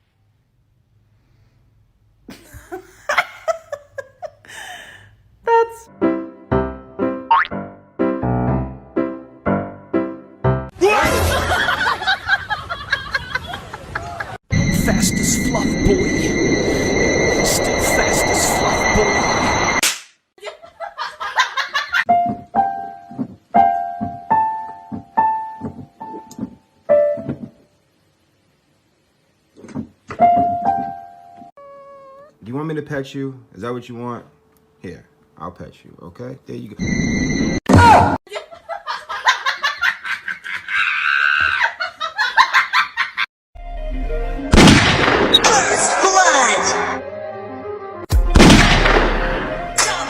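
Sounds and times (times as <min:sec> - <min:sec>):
person laughing hard: 0:02.3 - 0:04.9
piano notes with dull thump: 0:22.1 - 0:27.6.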